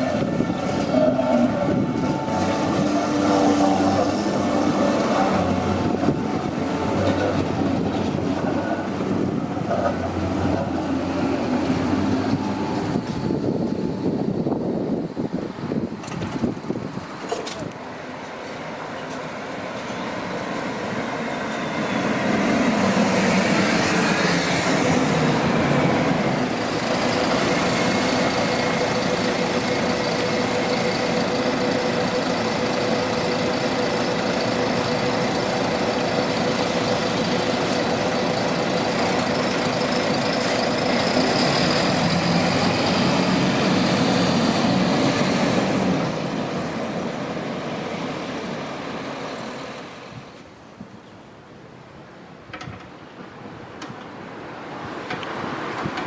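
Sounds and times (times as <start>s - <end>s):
tram rumbling and whining: 0.0s - 56.0s.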